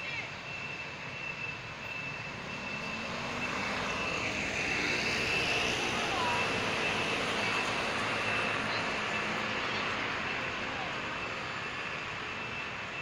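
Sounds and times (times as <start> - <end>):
outdoor rushing rumble: 0.0 - 13.0
faint voices: 5.6 - 12.1.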